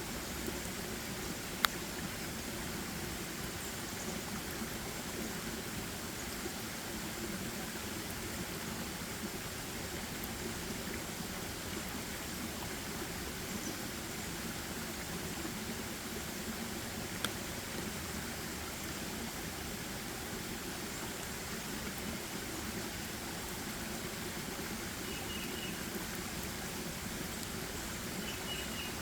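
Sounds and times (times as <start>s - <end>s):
rushing forest ambience: 0.0s - 29.0s.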